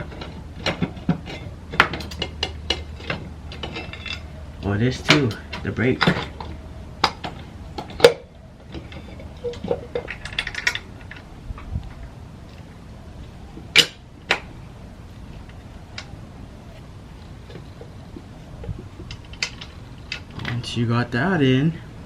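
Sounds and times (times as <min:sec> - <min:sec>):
metal tools clinking and knocking: 0:00.0 - 0:11.7, 0:18.6 - 0:20.6.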